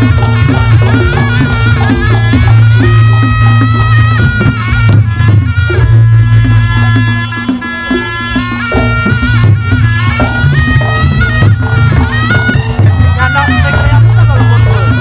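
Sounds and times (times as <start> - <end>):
hand drums: 0.0 - 15.0
shawm sliding melody: 0.0 - 15.0.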